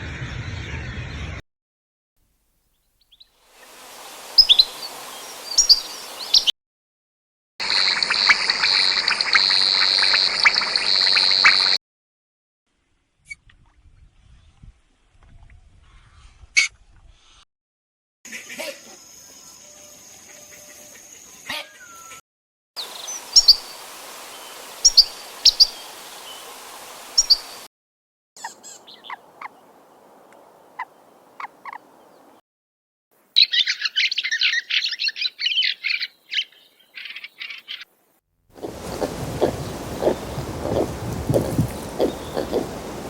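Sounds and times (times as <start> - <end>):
bird chirping: 4.3 - 6.5, 22.8 - 27.6, 28.4 - 32.4, 33.4 - 38.0, 38.6 - 43.0.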